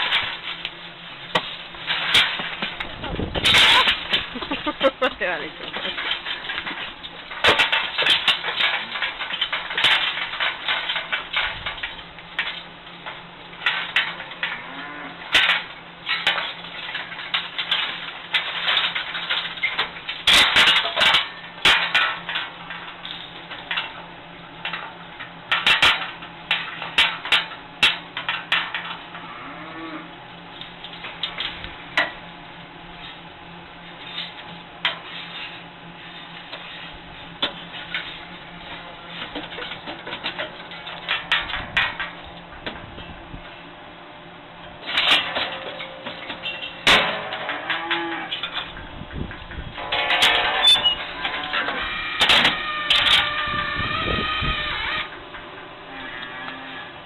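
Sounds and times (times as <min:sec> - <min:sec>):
metallic clanks and knocks: 0:00.0 - 0:14.7, 0:15.3 - 0:29.2, 0:33.9 - 0:43.2, 0:44.6 - 0:56.3
steady low hum: 0:00.0 - 0:57.0
cow mooing: 0:14.6 - 0:15.2, 0:29.2 - 0:30.2, 0:47.5 - 0:48.4, 0:55.9 - 0:57.0.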